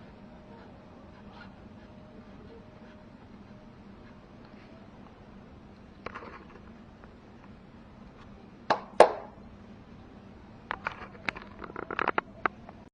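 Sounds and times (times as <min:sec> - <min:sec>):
faint steady hum: 0:00.0 - 0:12.9
hard objects knocking: 0:08.7 - 0:09.4.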